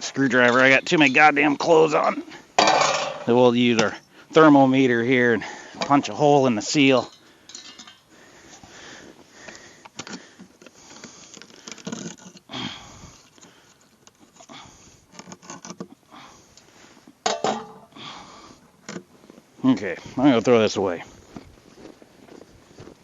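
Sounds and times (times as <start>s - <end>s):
plastic seal clicks and scrapes: 9.8s - 12.5s, 15.1s - 16.0s.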